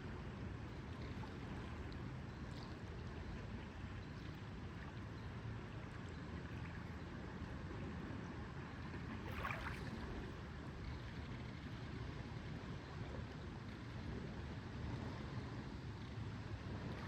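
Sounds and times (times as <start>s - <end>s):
lake water lapping: 9.2s - 10.4s.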